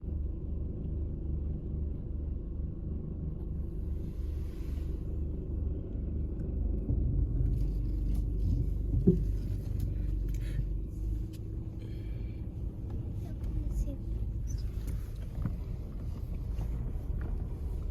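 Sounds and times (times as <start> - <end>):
wind buffeting microphone: 5.3 - 11.3.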